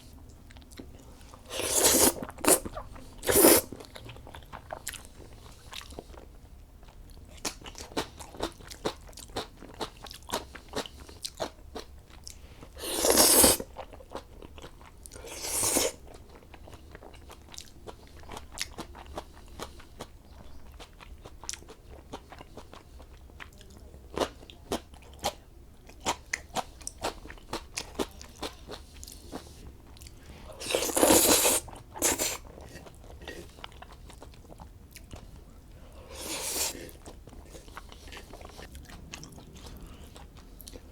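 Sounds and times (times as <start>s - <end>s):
noodle slurps: 1.5s - 2.6s, 3.2s - 3.7s, 12.8s - 13.6s, 30.6s - 32.4s, 36.1s - 36.9s
chewing with crunching clicks: 3.7s - 12.4s, 16.0s - 30.3s, 31.7s - 35.4s, 36.8s - 40.9s.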